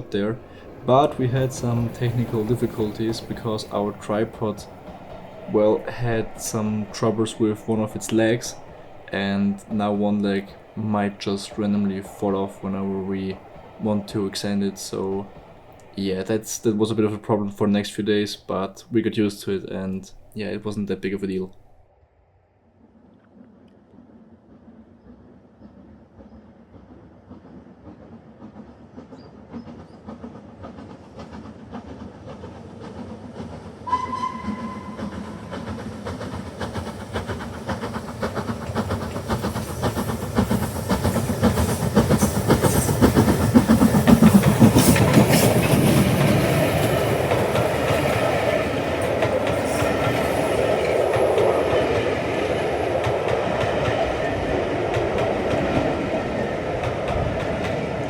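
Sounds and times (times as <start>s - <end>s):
wheels running over rails: 0.0s - 20.9s, 28.6s - 58.0s
steam train passing: 0.0s - 22.0s, 23.3s - 58.0s
steam whistle: 33.9s - 35.7s.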